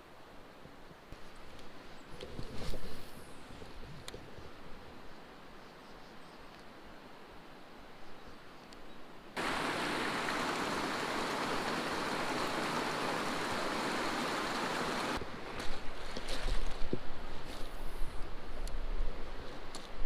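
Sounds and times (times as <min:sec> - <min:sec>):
fast-flowing water rushing: 0:09.4 - 0:15.2.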